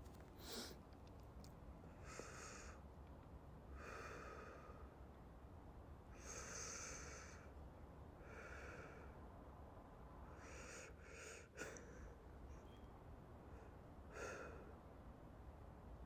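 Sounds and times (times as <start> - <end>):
slow breathing: 3.8 - 5.1.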